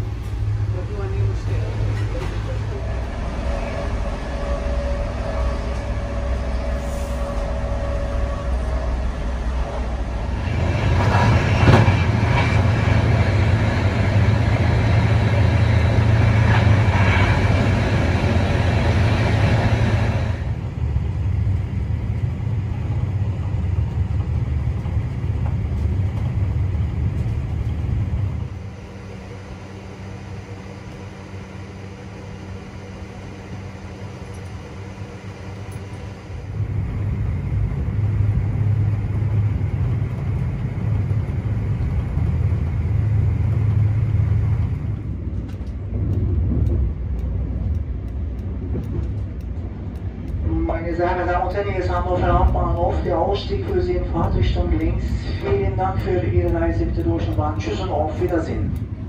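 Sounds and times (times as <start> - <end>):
low hum: 0.0 - 59.0
rushing noise: 0.0 - 59.0
train rumbling: 0.0 - 59.0.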